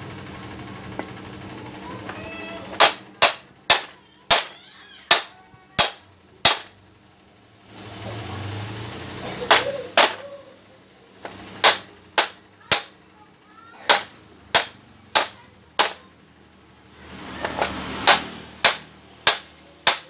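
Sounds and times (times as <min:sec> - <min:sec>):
hammer strikes: 0:02.7 - 0:06.8, 0:09.4 - 0:10.3, 0:11.2 - 0:13.0, 0:13.8 - 0:16.1, 0:17.4 - 0:20.0.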